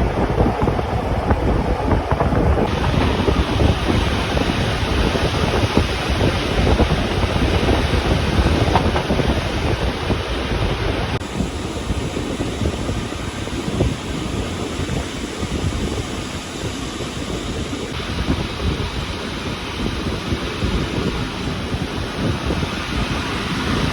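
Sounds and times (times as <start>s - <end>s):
wind buffeting microphone: 0.0s - 23.9s
scattered clicks: 11.2s - 18.0s.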